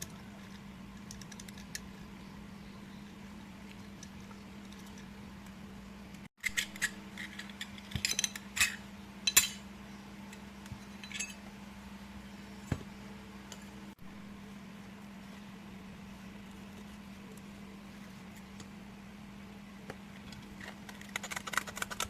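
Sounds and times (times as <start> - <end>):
faint steady hum: 0.0 - 22.0
small hard parts clinking: 10.8 - 11.4.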